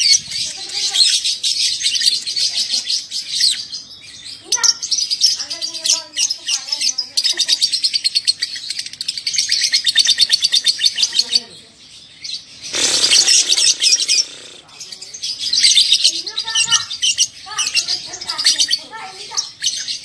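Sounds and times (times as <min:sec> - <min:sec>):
lovebird chattering chirps: 0:12.5 - 0:20.0.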